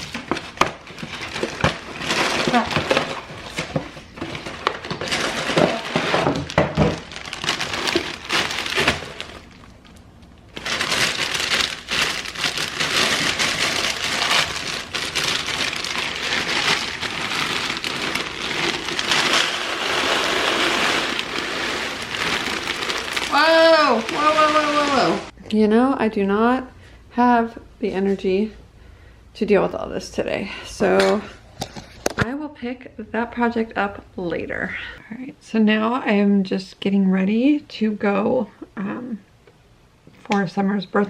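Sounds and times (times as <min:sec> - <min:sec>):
plastic containers clattering: 0:00.0 - 0:09.7, 0:10.6 - 0:25.3
plastic packaging crinkling: 0:00.0 - 0:25.3
cereal poured into container: 0:16.0 - 0:23.4.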